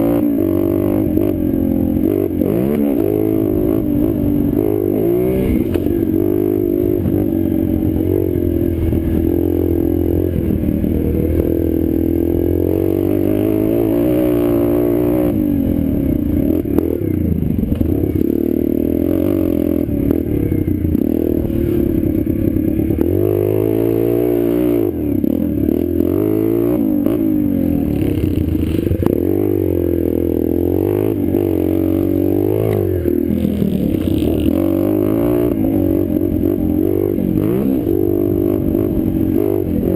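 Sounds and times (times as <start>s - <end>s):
pit bike engine revving: 0.0s - 39.9s.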